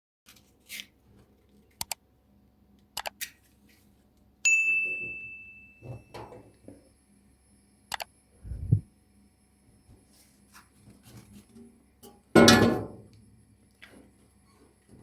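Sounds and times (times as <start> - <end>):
loud bright ding: 4.5 - 6.3.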